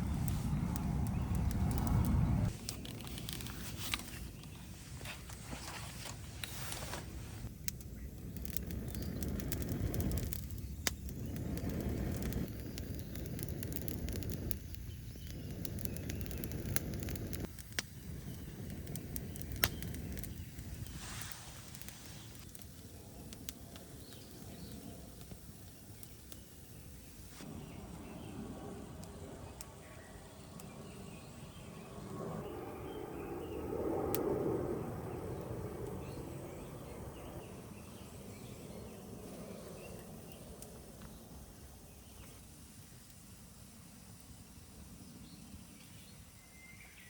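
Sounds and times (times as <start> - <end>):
low rushing noise: 0.0 - 2.7
wood fire crackling and popping: 0.0 - 5.4, 6.1 - 26.8.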